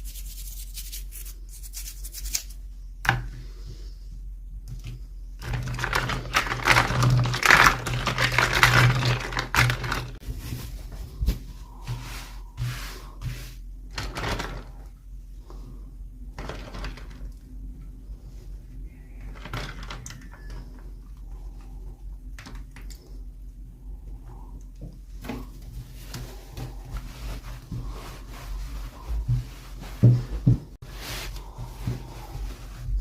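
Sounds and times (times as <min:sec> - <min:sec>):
low steady hum: 0:00.0 - 0:33.0
packaging clicks: 0:05.4 - 0:10.2
packaging rustling: 0:05.4 - 0:11.4.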